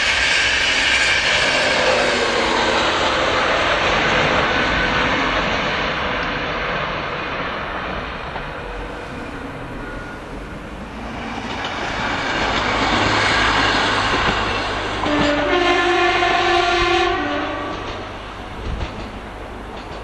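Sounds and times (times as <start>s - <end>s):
train wheels rushing on rail: 0.0s - 20.0s
two-tone train horn: 15.0s - 18.1s.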